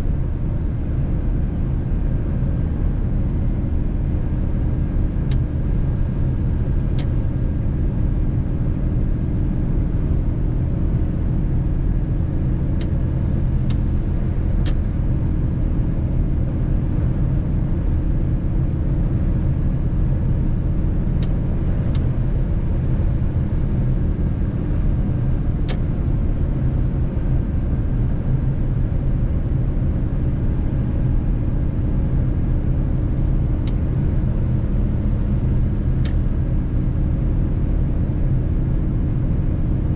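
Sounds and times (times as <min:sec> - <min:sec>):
truck engine and road drone: 0:00.0 - 0:39.9.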